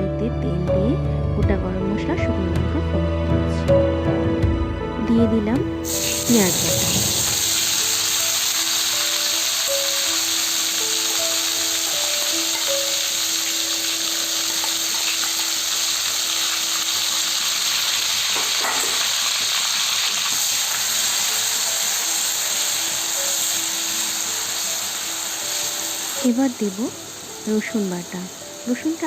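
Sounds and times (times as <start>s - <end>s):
soft background music: 0.0s - 29.0s
onion paste sizzling in oil: 5.8s - 29.0s.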